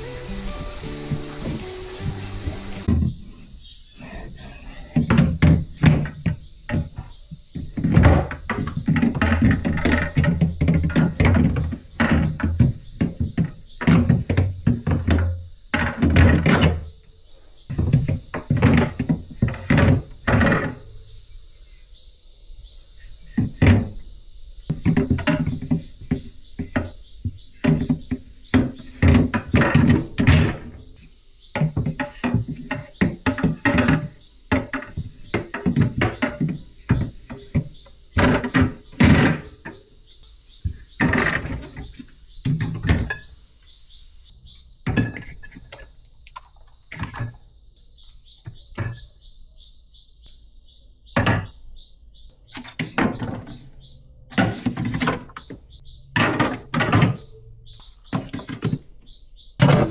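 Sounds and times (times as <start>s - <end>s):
background music: 0.0s - 2.9s.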